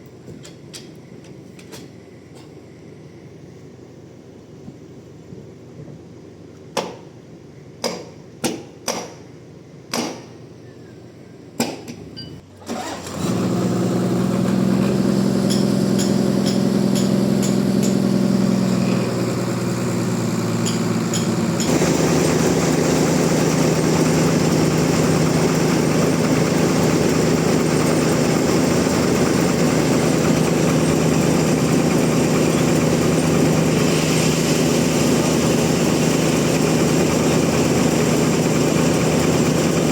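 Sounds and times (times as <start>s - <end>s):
engine running: 12.5s - 39.9s.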